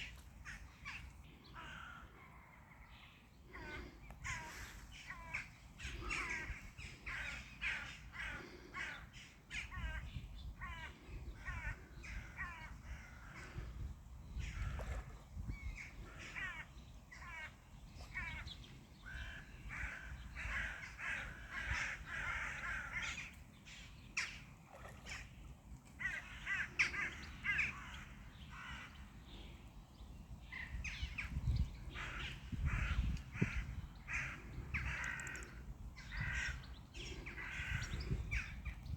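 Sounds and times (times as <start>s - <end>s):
birds making harsh calls: 31.9s - 38.6s.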